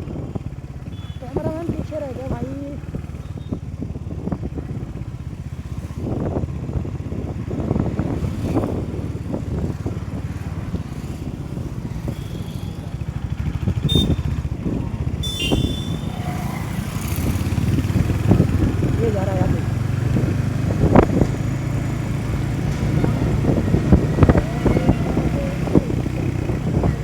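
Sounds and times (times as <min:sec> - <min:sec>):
motorcycle engine running: 0:00.0 - 0:27.0
road and air noise: 0:00.0 - 0:27.0
brief high-pitched tone: 0:15.2 - 0:16.4.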